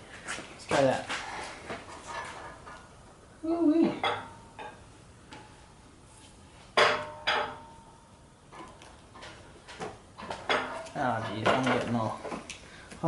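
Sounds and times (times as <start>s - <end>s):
metal clanks and knocks: 6.8s - 7.9s, 8.5s - 12.2s.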